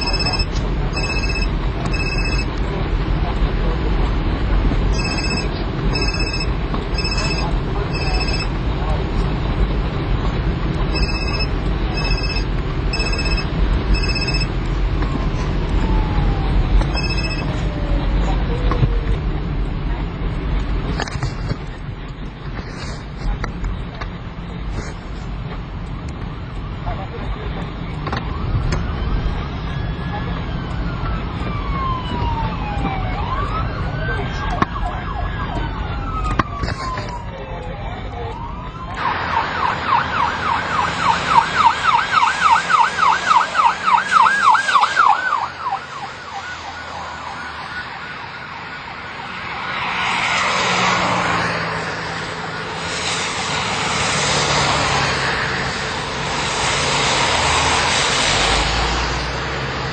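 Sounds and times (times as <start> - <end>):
short high electronic beeps: 0.0 - 2.5, 4.9 - 8.5, 10.9 - 14.5, 16.9 - 17.5
police sirens wailing: 0.0 - 22.5, 26.0 - 59.9
low vehicle rumble: 0.0 - 59.9.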